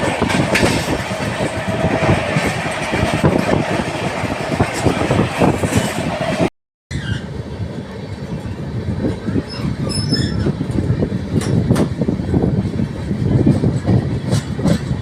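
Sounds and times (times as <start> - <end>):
train rumbling on rails: 0.0 - 15.0
wheel squeals: 6.9 - 7.3, 9.3 - 10.7.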